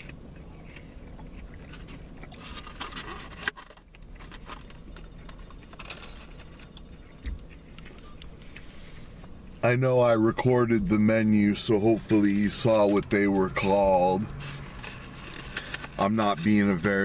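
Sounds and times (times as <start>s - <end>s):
small clicks and crunches: 0.0s - 8.7s, 14.4s - 17.0s
eating and handling noises: 0.0s - 17.0s.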